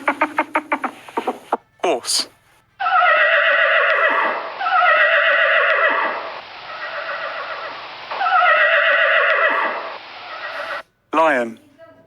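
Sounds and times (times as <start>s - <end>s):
horse whinnying: 2.8s - 10.8s.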